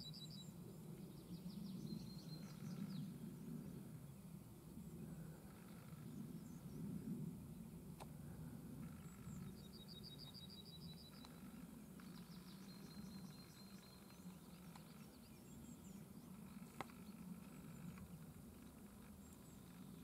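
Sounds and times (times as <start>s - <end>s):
low steady background hum: 0.0s - 20.0s
songbird trilling: 8.8s - 20.0s.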